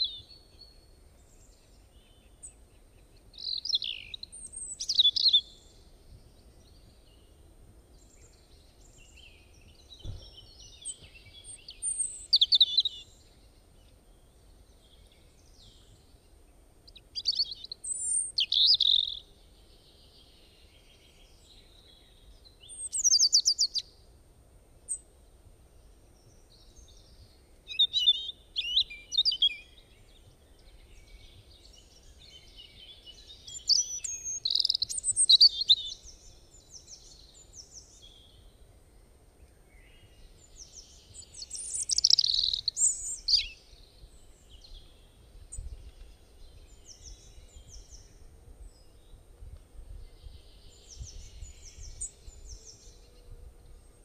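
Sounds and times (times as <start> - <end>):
songbird warbling: 16.9 - 19.2, 33.1 - 36.2, 40.7 - 43.6.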